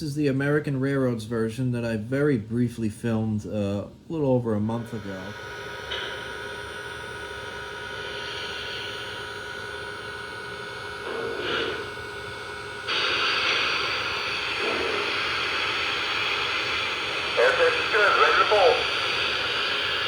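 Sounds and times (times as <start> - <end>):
model locomotive steam hissing: 11.1 - 12.1, 12.8 - 20.0.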